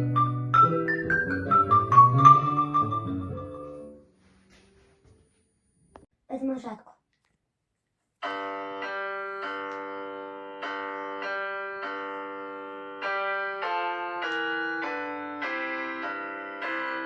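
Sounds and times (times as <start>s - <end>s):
sustained piano-like chords: 8.2s - 17.0s.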